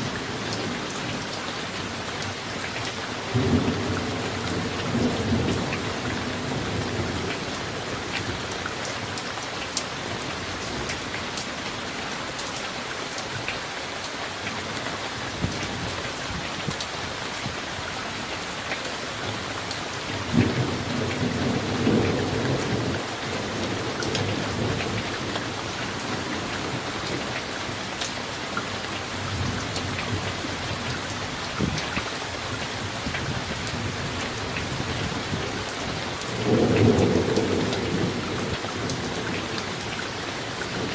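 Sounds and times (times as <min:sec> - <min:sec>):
rain pattering: 0:00.0 - 0:40.9
thunder rumbling: 0:33.0 - 0:39.9.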